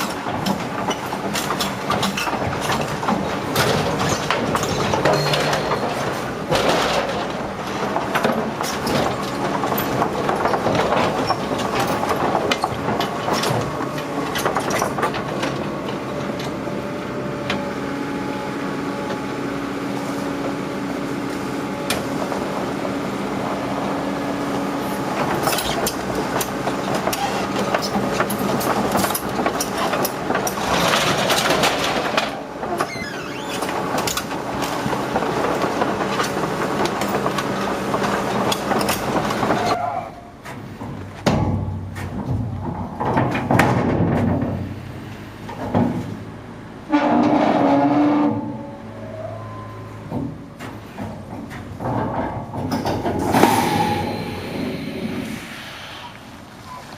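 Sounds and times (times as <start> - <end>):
tracks clattering and knocking: 0.0 - 18.1, 18.8 - 56.7
tractor engine running: 0.0 - 39.7.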